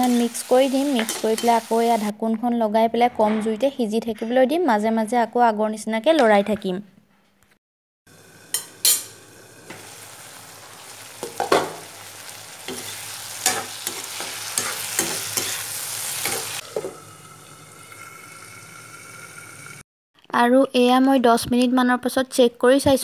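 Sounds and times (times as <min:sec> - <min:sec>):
vegetables sizzling in oil: 0:00.0 - 0:02.1, 0:08.1 - 0:19.8
metal spatula scraping a pan: 0:00.8 - 0:01.9, 0:08.5 - 0:10.0, 0:12.6 - 0:16.9.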